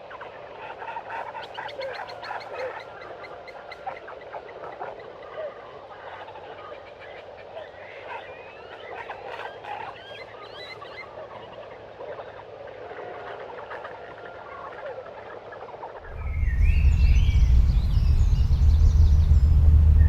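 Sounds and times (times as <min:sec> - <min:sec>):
quick chirps and gliding whistles: 0:16.0 - 0:20.0
bird calls: 0:16.1 - 0:20.0.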